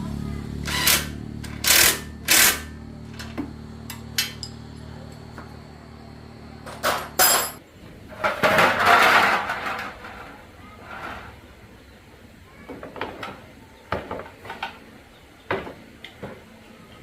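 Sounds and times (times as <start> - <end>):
low steady hum: 0.0 - 10.2
metal tools clinking and knocking: 3.1 - 4.6, 6.6 - 7.6.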